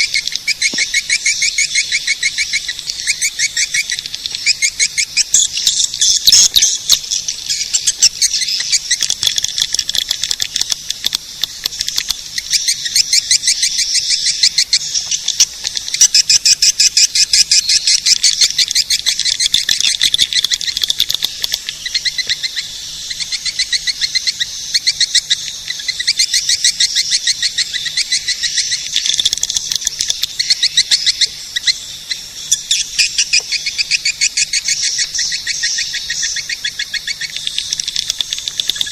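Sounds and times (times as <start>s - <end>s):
high-pitched swiftlet twittering: 11.3s - 38.9s.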